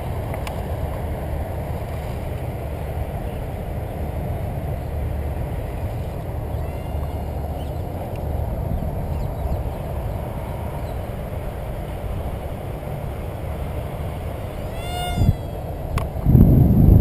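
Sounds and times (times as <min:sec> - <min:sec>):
low outdoor rumble: 0:00.0 - 0:17.0
cat-like animal call: 0:14.6 - 0:15.8.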